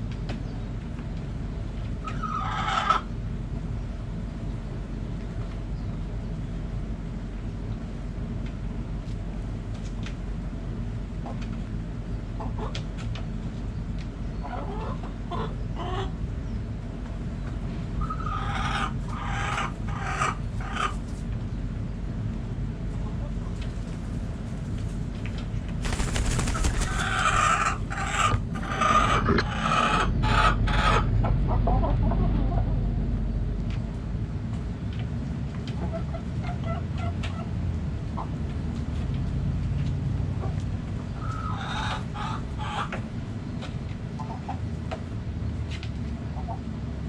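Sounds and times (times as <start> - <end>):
low background rumble: 25.8 - 29.3
chickens clucking and crowing: 25.8 - 30.8.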